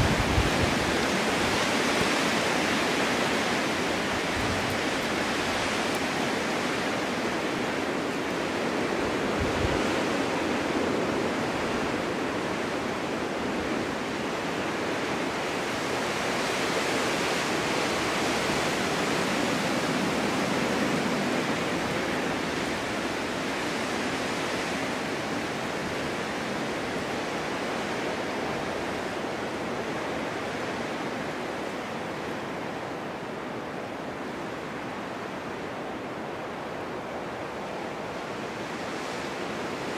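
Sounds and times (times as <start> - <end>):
storm wind rushing: 0.0 - 13.0.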